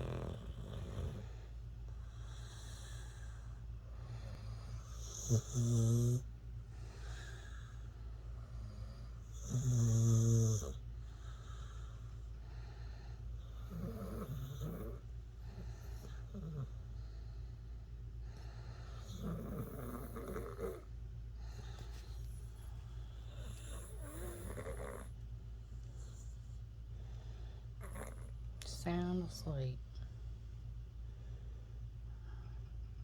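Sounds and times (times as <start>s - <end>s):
dog snoring: 0.0s - 17.2s, 18.2s - 28.4s.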